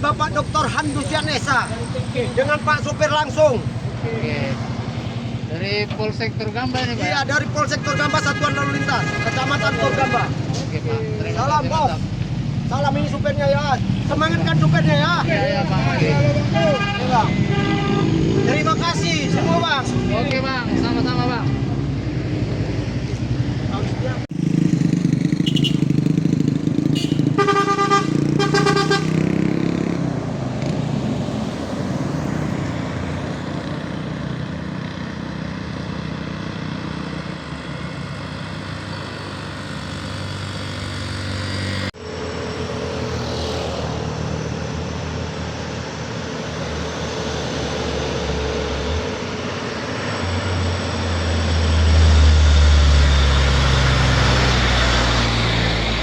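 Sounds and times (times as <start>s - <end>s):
heavy truck engines: 0.0s - 56.0s
horn toots: 7.4s - 10.8s, 16.6s - 19.3s, 25.3s - 26.2s, 26.8s - 29.5s.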